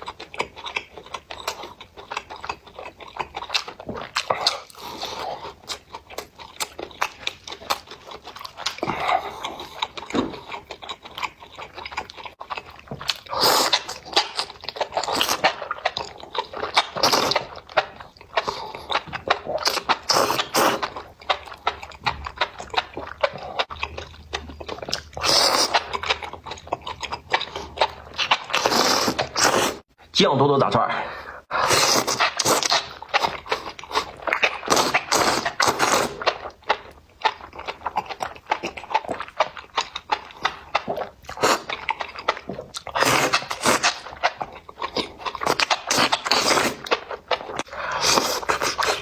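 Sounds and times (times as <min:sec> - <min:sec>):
person chewing food: 0:00.0 - 0:29.9, 0:31.2 - 0:49.0
slurping: 0:13.1 - 0:29.8, 0:31.5 - 0:36.8, 0:37.7 - 0:49.0.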